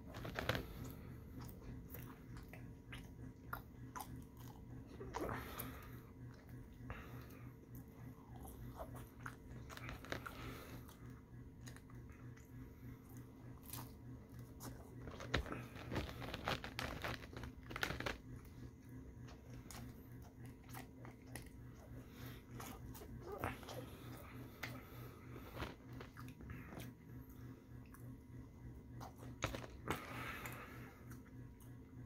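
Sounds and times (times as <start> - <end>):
crunching bites and wet chewing: 0.0 - 32.0
steady low hum: 0.0 - 32.0.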